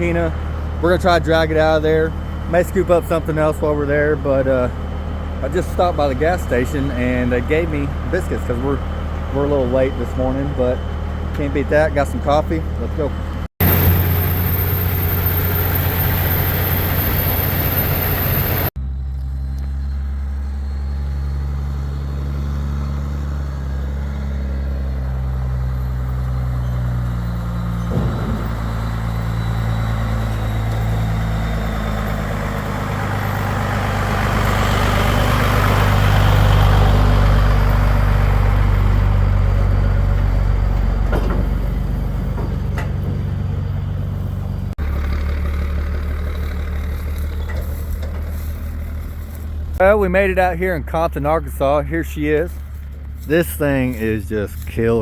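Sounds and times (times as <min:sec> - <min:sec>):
road noise: 0:00.0 - 0:55.0
truck engine drone: 0:00.0 - 0:55.0.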